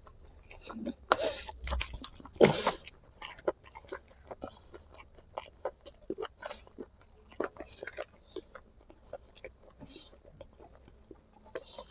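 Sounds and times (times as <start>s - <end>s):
person chewing wet food: 0.0s - 11.9s.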